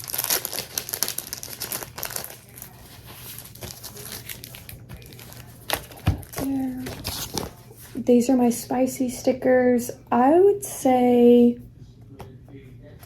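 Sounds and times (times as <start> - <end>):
sticker sheet crinkling: 0.0 - 7.9.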